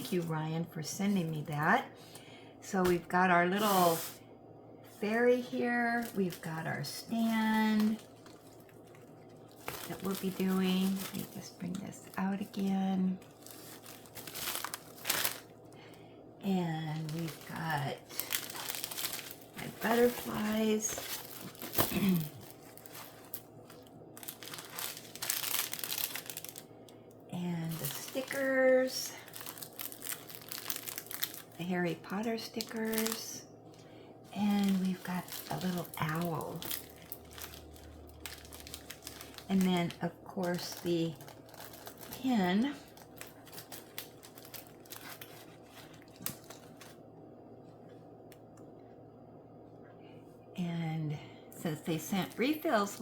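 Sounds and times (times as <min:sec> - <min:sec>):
packaging crinkling: 0:04.9 - 0:16.1, 0:16.7 - 0:27.0, 0:27.6 - 0:47.0.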